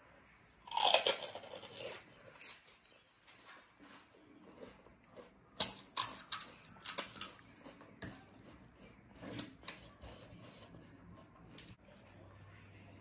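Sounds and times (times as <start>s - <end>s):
crunchy food being chewed: 0.6s - 12.1s.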